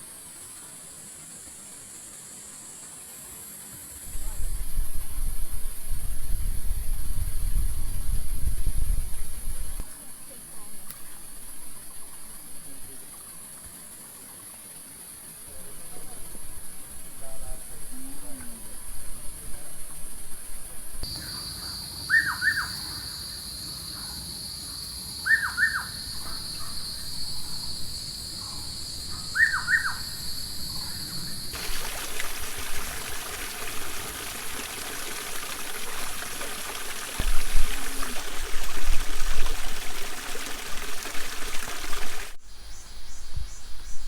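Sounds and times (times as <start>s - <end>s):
running water: 0.0s - 21.3s, 29.4s - 42.4s
insect drone: 0.0s - 44.0s
bird calling: 21.1s - 23.4s, 25.2s - 31.6s.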